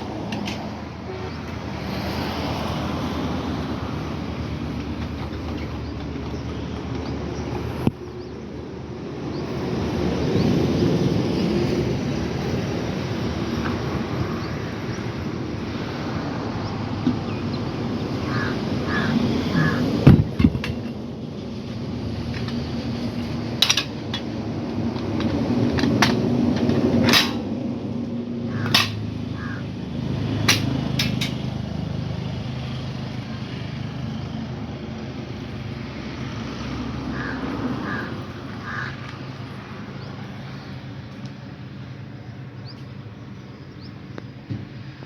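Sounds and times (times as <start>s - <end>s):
crow cawing: 18.2s - 20.0s, 28.5s - 29.8s, 37.0s - 39.2s
metal knocks and clacks: 30.5s - 31.5s.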